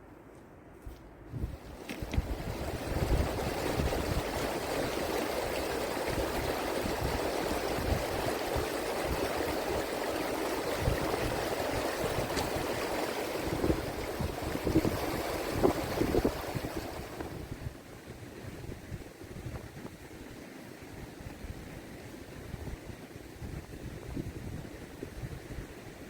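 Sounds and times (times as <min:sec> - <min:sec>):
wind rumble on microphone: 0:00.8 - 0:26.0
flowing water rushing: 0:01.4 - 0:17.8.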